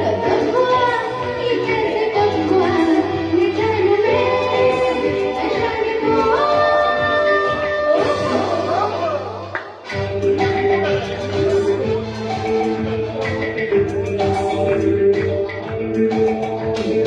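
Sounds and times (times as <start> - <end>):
woman singing: 0.0 - 9.1
instrumental accompaniment: 0.0 - 17.0.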